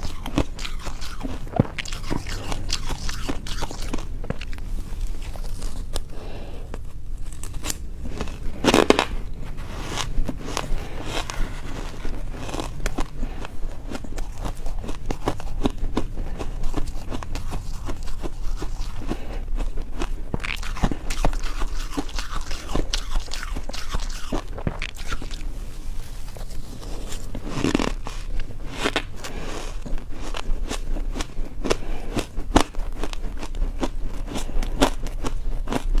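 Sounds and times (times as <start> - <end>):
ice crunched between teeth: 20.0 - 25.5, 26.9 - 36.0.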